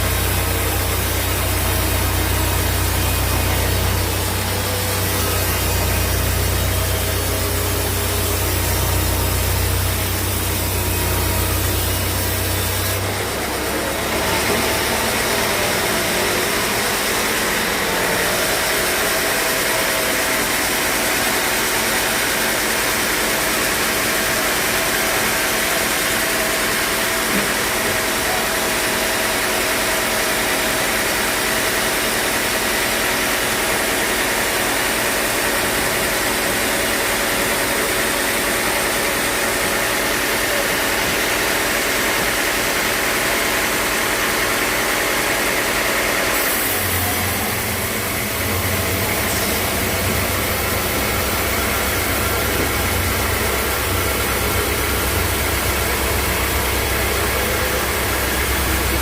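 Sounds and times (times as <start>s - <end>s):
sawmill machinery running: 0.0s - 59.0s
low drone: 46.7s - 59.0s.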